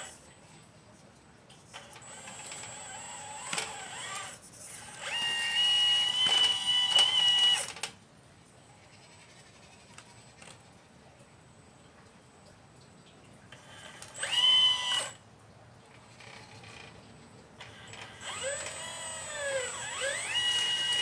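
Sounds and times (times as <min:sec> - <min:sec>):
hydraulic pump whining: 0:01.8 - 0:07.8, 0:13.6 - 0:15.2, 0:17.6 - 0:21.0.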